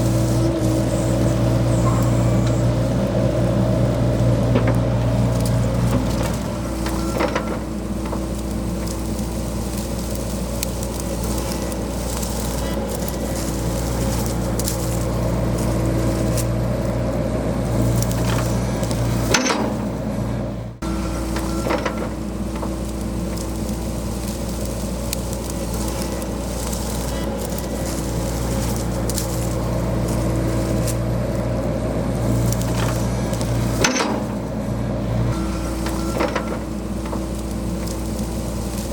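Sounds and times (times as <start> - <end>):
bucket knocking and scraping soil: 0.0 - 16.6, 35.3 - 38.9
excavator diesel engine running: 0.0 - 38.9.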